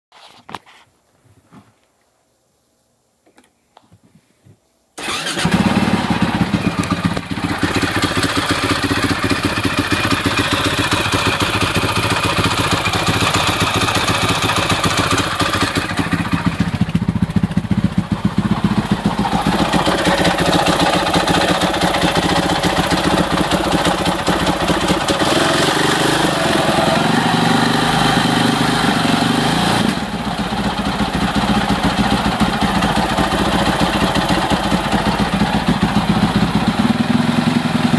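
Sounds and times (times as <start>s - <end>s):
engine ticking and knocking: 5.0s - 26.8s, 29.8s - 37.9s
motorcycle engine running: 5.0s - 37.9s.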